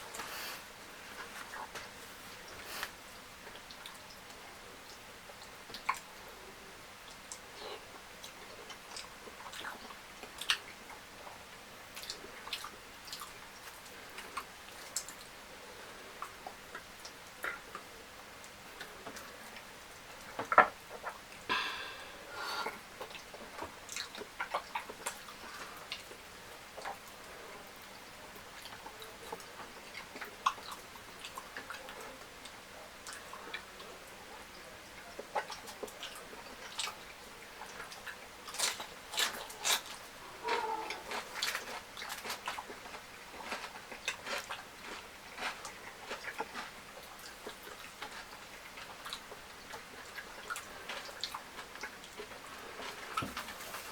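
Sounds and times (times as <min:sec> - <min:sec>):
chewing with wet smacks: 0:01.2 - 0:21.5, 0:22.6 - 0:53.9
person chewing: 0:37.7 - 0:53.9.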